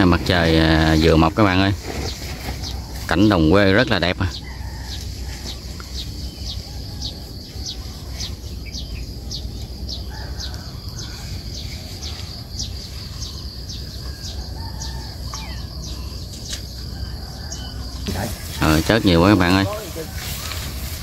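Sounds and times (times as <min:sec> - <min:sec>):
small birds chirping: 0:00.0 - 0:21.0
low steady rumble: 0:04.5 - 0:18.6.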